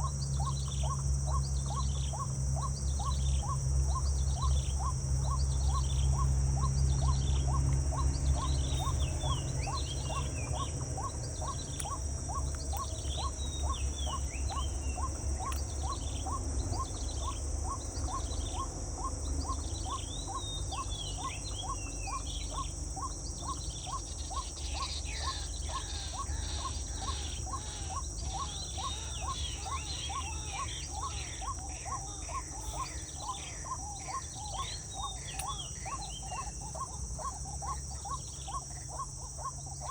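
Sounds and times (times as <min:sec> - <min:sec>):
birds chirping: 0:00.0 - 0:39.9
high insect drone: 0:00.0 - 0:39.9.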